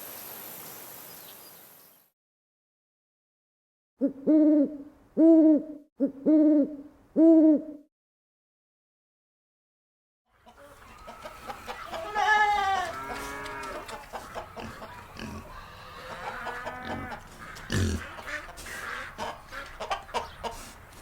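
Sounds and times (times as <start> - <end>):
chickens clucking: 10.3 - 21.0.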